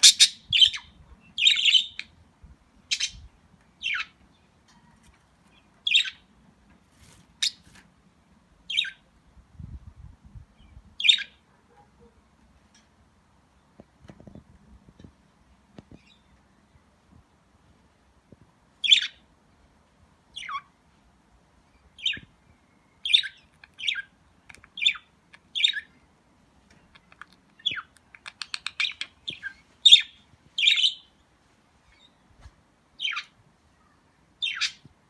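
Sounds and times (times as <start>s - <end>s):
budgerigars chirping: 0.0s - 2.1s, 2.9s - 3.2s, 18.8s - 19.2s, 23.0s - 25.9s, 27.0s - 31.1s, 34.4s - 34.8s.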